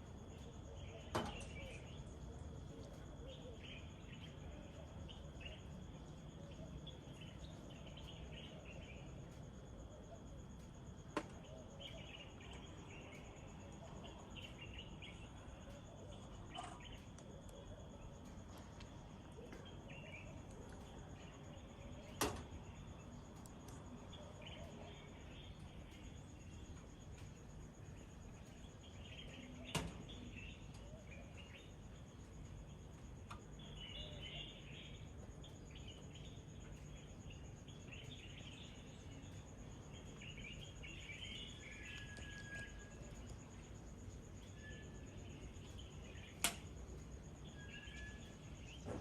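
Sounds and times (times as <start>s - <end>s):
high insect drone: 0.0s - 49.0s
small birds chirping: 0.0s - 49.0s.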